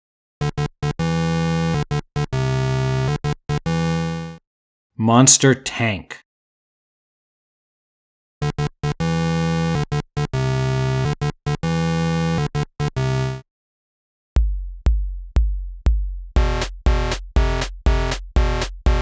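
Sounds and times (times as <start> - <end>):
drum machine beat: 14.4 - 19.0
buzzy synthesizer: 16.4 - 19.0
synth chords: 16.4 - 19.0.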